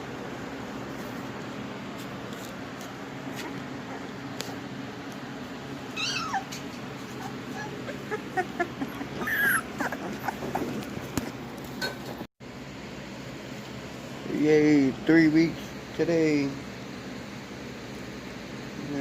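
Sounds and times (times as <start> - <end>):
puppies whimpering and squeaking: 5.8 - 11.2.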